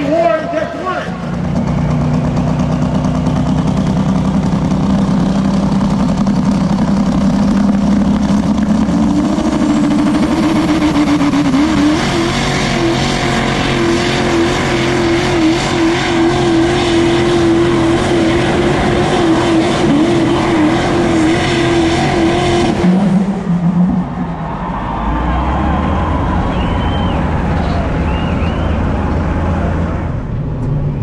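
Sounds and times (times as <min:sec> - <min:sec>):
truck engine at full throttle: 0:00.0 - 0:31.0.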